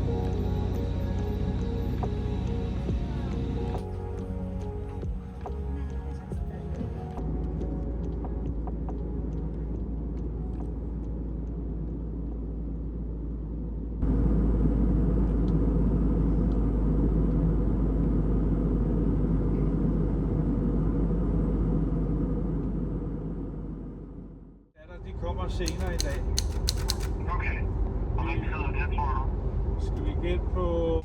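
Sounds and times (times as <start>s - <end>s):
vehicle interior rumble: 0.0s - 24.7s
faint clicks: 25.6s - 27.2s.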